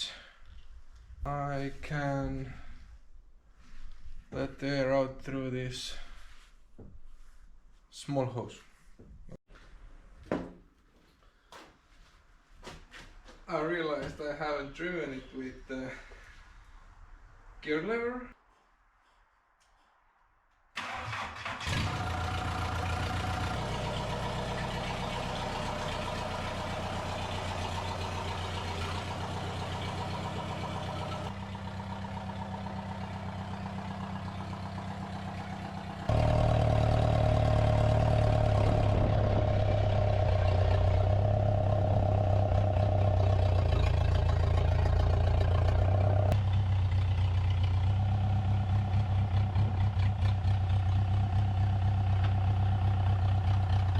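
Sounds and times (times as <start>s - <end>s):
small loader engine running: 20.8s - 53.9s.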